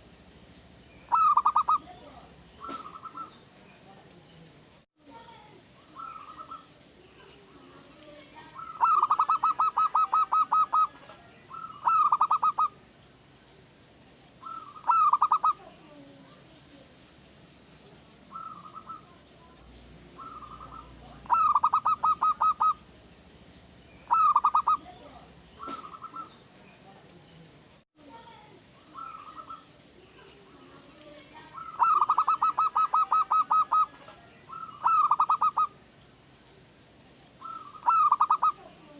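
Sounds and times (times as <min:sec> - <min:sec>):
dove cooing: 0:01.1 - 0:03.4, 0:05.8 - 0:06.7, 0:08.4 - 0:12.8, 0:14.4 - 0:16.1, 0:18.3 - 0:19.2, 0:20.1 - 0:22.9, 0:24.0 - 0:26.4, 0:28.9 - 0:35.8, 0:37.4 - 0:38.9.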